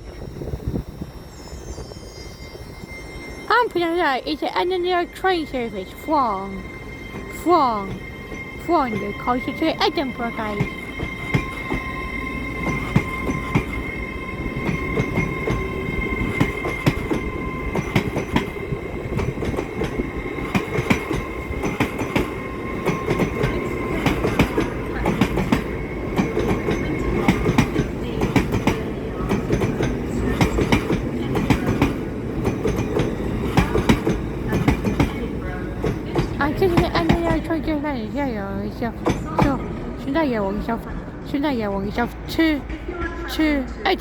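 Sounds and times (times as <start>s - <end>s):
train wheels clattering over rails: 7.6s - 37.8s.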